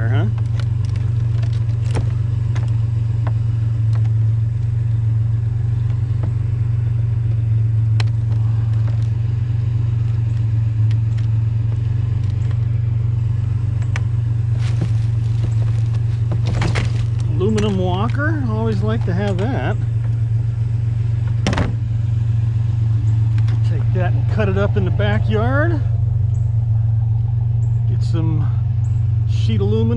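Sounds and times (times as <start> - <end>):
engine idling: 0.0 - 29.9
light clicks and knocks: 13.8 - 20.2.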